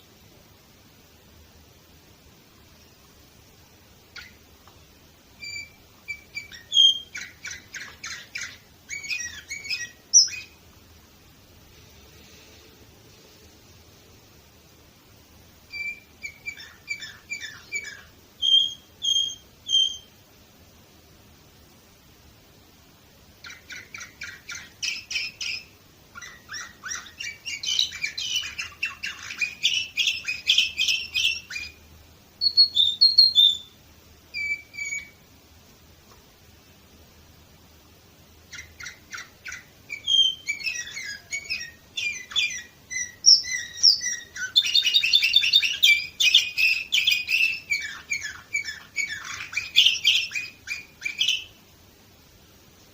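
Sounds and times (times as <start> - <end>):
canary singing: 4.0 - 10.7, 15.6 - 20.2, 23.4 - 35.3, 38.4 - 51.7
high whistled bird notes: 5.4 - 10.6, 15.7 - 20.2, 23.4 - 31.8, 32.4 - 35.2, 38.5 - 51.6.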